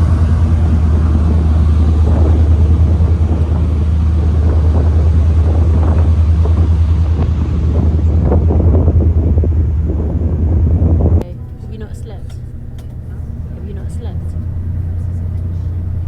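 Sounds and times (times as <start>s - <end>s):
wind and water rushing: 0.0s - 11.2s
ferry engine deep drone: 0.0s - 16.0s.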